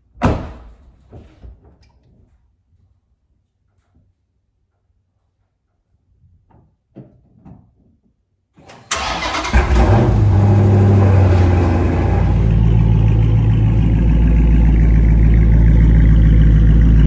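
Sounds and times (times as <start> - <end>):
car engine starting and idling: 8.6 - 17.0.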